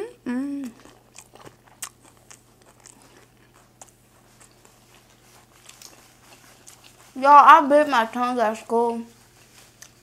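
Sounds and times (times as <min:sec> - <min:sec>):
chewing with soft crunches: 0:00.6 - 0:07.3, 0:09.1 - 0:10.0.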